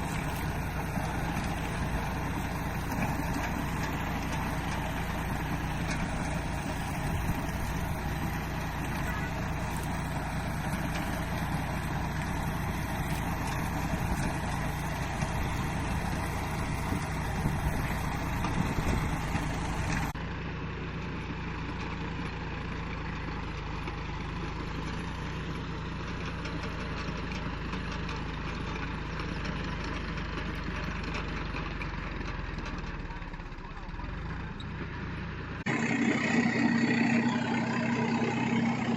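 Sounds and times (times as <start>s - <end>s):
tractor engine running under load: 0.0s - 38.9s.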